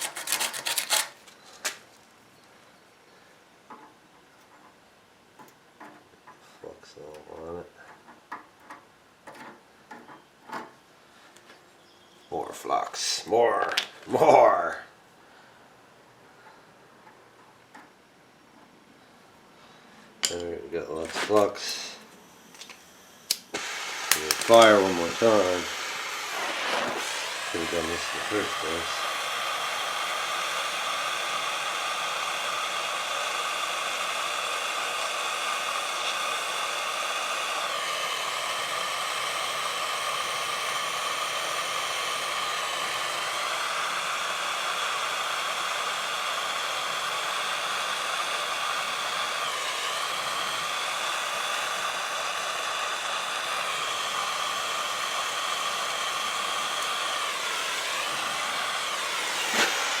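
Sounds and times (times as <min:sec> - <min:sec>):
gas torch flame hissing: 0:20.2 - 1:00.0.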